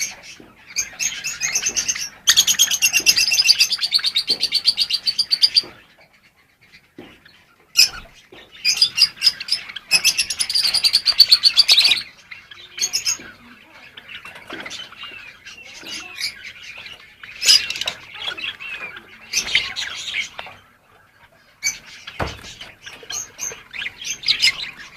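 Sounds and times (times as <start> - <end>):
sparrows chirping: 0.0 - 24.9.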